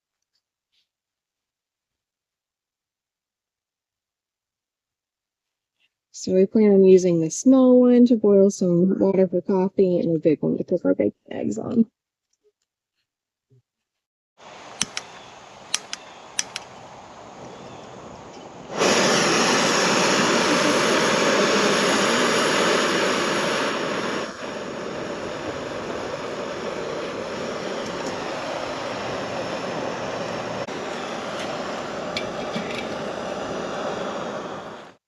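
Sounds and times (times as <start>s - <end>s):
gas burner hissing: 14.4s - 35.0s.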